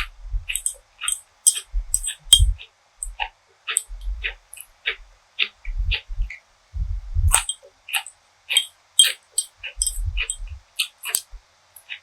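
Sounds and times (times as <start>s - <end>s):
dull low thumps: 0.0s - 0.6s, 1.7s - 2.6s, 3.9s - 4.3s, 5.7s - 7.4s, 9.8s - 10.7s
food crackling while chewed: 7.3s - 12.0s.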